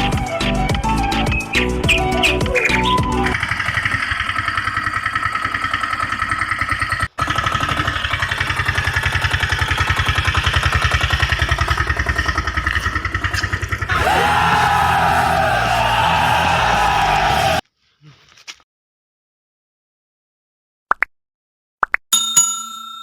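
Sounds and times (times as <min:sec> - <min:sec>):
engine chugging: 0:01.0 - 0:17.6.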